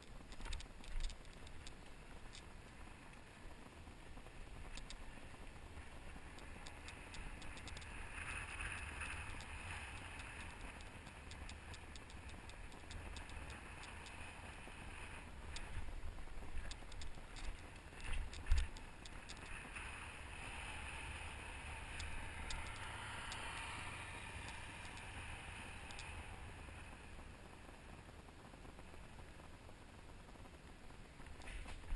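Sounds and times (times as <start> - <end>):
low wind rumble: 0.0 - 31.9
hiss: 19.8 - 27.0.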